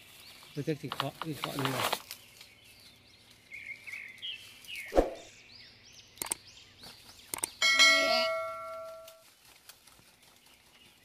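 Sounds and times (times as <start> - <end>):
small birds chirping: 0.0 - 8.9
light clicks: 6.2 - 6.4, 7.3 - 7.6
metallic clang ringing: 7.6 - 9.2.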